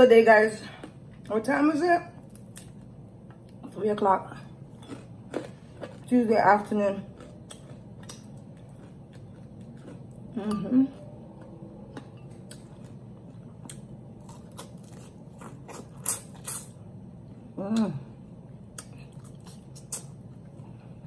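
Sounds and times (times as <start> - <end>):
person chewing meat off bone: 4.7 - 6.1, 7.1 - 10.3, 11.2 - 16.7.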